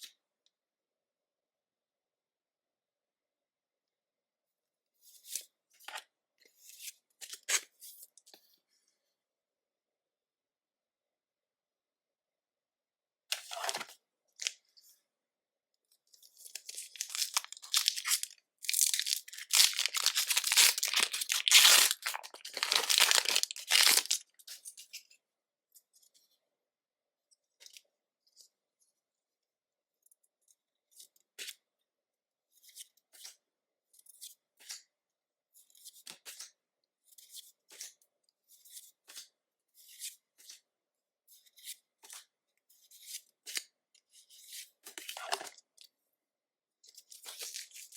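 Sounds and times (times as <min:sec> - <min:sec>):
foil wrapper tearing and crinkling: 0:16.7 - 0:24.2.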